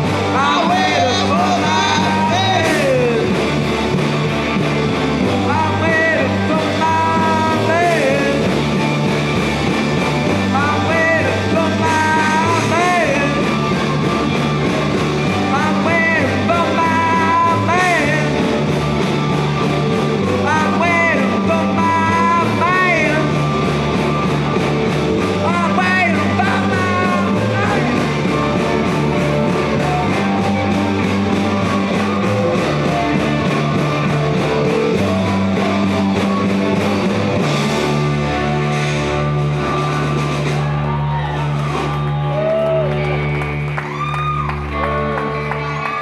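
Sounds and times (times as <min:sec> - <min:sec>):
person singing: 0:00.0 - 0:03.5, 0:05.3 - 0:08.7, 0:10.4 - 0:14.1, 0:15.2 - 0:18.7, 0:20.2 - 0:23.5, 0:25.2 - 0:36.4
drumbeat: 0:00.0 - 0:42.8
bass guitar: 0:00.0 - 0:46.0
electric guitars: 0:00.0 - 0:46.0.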